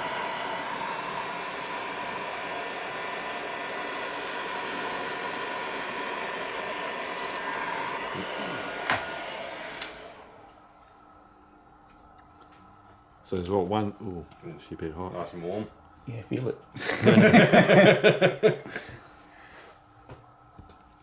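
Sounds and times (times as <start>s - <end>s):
heat gun blowing: 0.0s - 10.6s.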